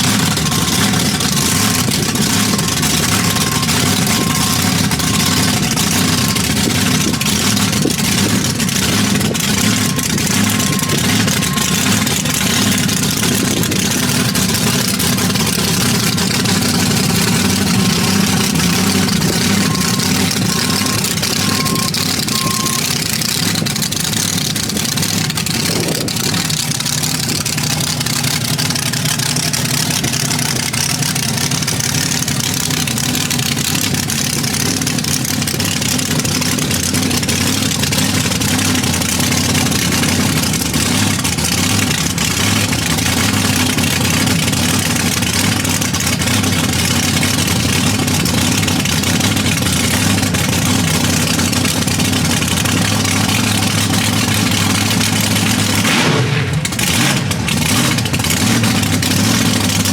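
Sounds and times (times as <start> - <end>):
faint beeping: 0.0 - 12.8, 17.4 - 23.0
large engine idling: 0.0 - 59.9.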